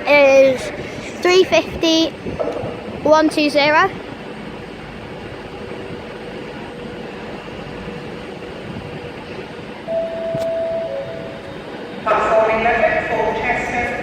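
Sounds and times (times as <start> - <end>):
electric train humming: 0.0 - 14.0
loud steady tone: 9.8 - 14.0.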